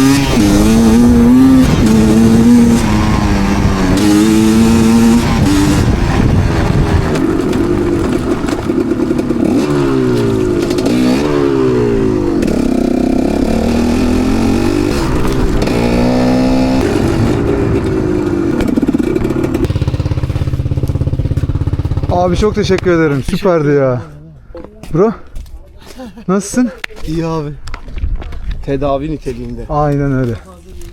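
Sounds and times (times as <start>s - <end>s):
dirt bike engine revving: 0.0s - 23.2s.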